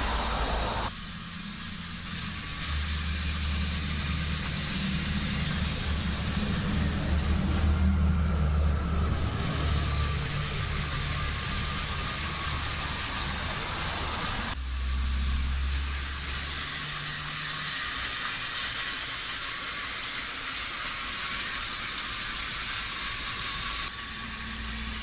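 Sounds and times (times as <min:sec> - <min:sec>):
wheels rattling on rails: 0:00.0 - 0:00.9
toy train motors whirring: 0:00.0 - 0:25.0.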